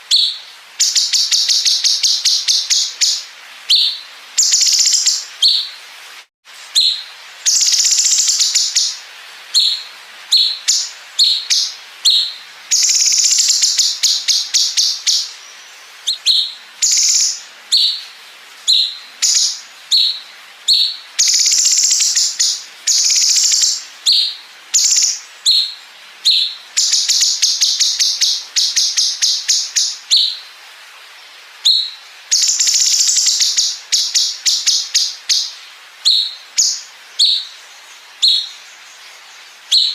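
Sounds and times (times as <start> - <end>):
songbird singing: 0.0 - 5.9, 6.5 - 39.9
fast rattling bird trills: 6.8 - 9.0, 10.4 - 15.3, 16.0 - 18.0, 20.8 - 25.6.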